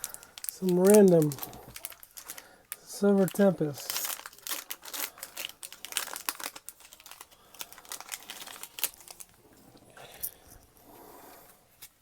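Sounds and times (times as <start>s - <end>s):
foil wrapper crinkling: 0.0s - 9.4s.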